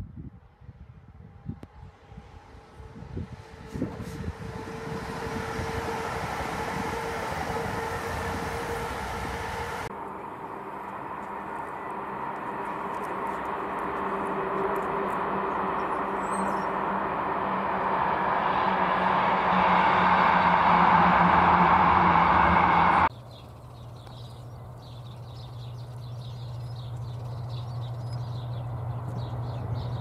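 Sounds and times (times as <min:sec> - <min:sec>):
train approaching: 0:01.1 - 0:23.2, 0:24.4 - 0:30.0
steady hum: 0:01.7 - 0:23.1.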